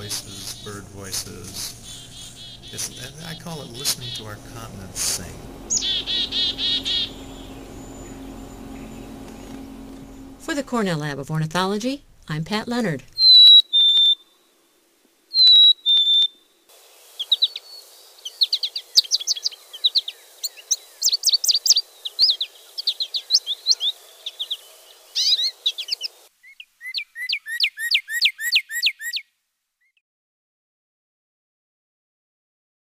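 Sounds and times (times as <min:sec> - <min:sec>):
bird song with chirps and whistles: 0:00.0 - 0:10.4, 0:13.2 - 0:14.3, 0:15.3 - 0:16.4, 0:17.2 - 0:30.0
faint hiss: 0:00.0 - 0:12.3, 0:14.1 - 0:15.4, 0:16.3 - 0:26.5.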